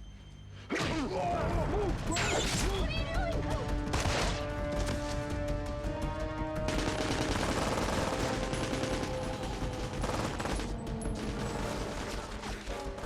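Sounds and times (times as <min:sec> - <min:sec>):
dramatic music score: 0:00.0 - 0:13.0
rapid automatic gunfire: 0:02.8 - 0:05.7, 0:06.6 - 0:13.0.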